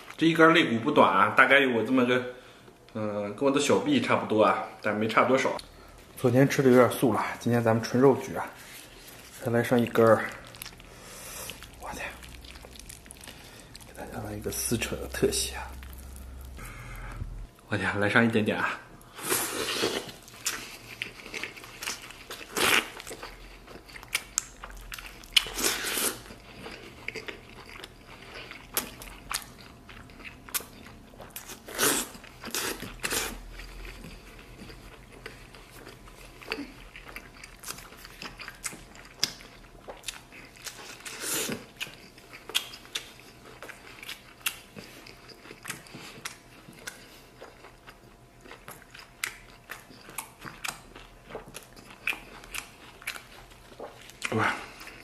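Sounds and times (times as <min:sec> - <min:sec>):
man chewing meat: 0:08.6 - 0:17.6, 0:19.0 - 0:55.0.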